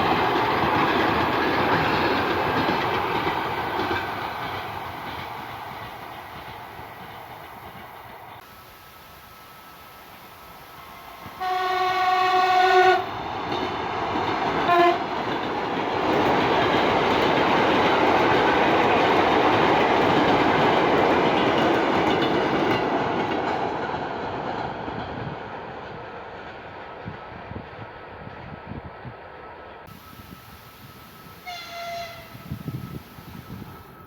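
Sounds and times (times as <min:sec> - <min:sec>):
train passing: 0:00.0 - 0:34.0
train horn: 0:08.5 - 0:13.2, 0:14.6 - 0:15.2, 0:29.9 - 0:34.0.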